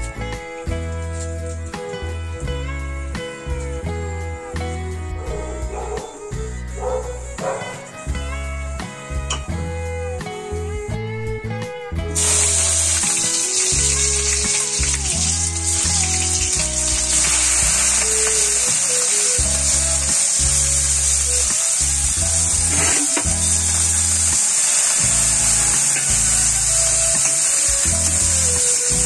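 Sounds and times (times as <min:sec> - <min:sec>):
background music: 0:00.0 - 0:29.0
vegetables sizzling in hot oil: 0:12.2 - 0:29.0.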